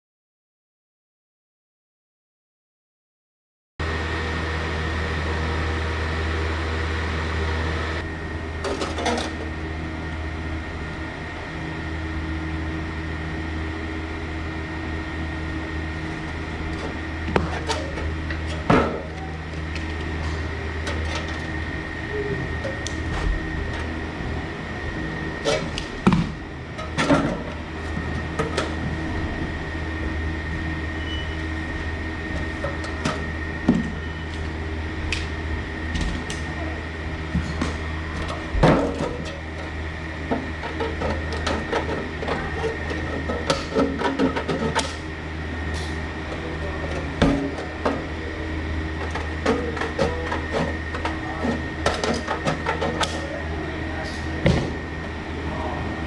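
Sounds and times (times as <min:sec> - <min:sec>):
machine hum: 0:03.8 - 0:56.0
thin high whine: 0:15.4 - 0:34.8
knocks and clicks of handling: 0:49.0 - 0:53.3.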